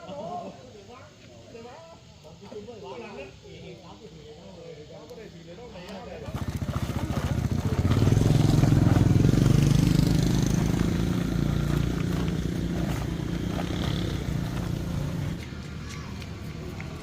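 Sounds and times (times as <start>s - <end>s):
small engine running: 6.2s - 17.0s.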